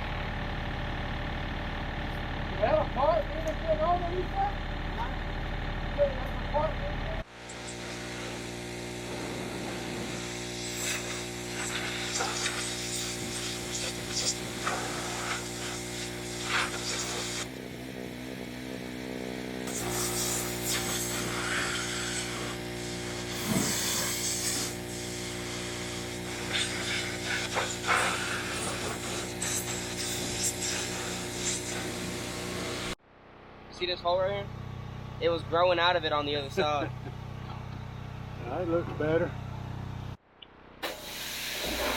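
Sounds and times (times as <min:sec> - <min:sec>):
pressure washer engine running: 0:00.0 - 0:33.0, 0:34.2 - 0:40.2
spray hissing and scraping: 0:10.1 - 0:17.5, 0:19.7 - 0:24.8, 0:26.2 - 0:32.8, 0:41.0 - 0:41.9.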